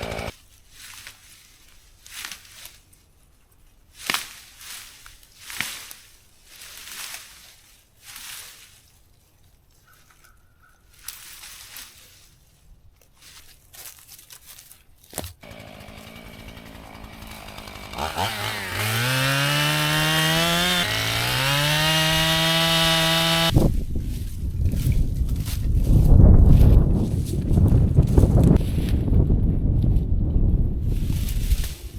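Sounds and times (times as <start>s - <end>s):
two-stroke chainsaw revving: 0.0s - 0.3s, 15.4s - 23.6s.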